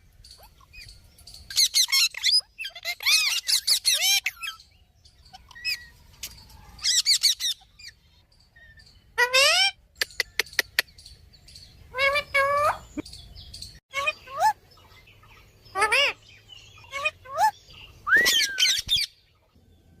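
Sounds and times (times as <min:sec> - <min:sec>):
parrot calls: 0:01.5 - 0:04.6, 0:09.2 - 0:10.8, 0:15.7 - 0:16.2, 0:16.8 - 0:19.1.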